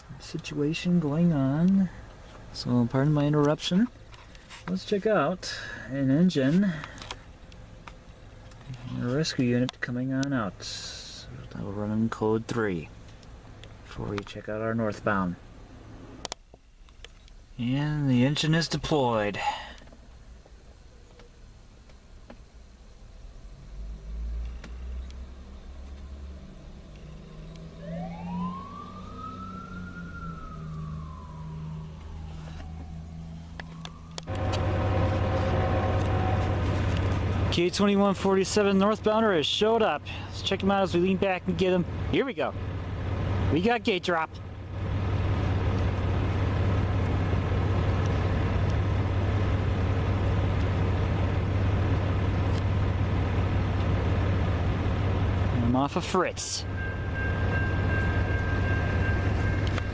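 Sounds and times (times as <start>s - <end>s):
low engine rumble: 0.0s - 59.9s
low hum: 26.5s - 43.6s, 44.3s - 59.9s
fire engine siren wailing: 27.2s - 42.0s, 56.5s - 59.9s
loud steady rumble: 30.4s - 59.9s.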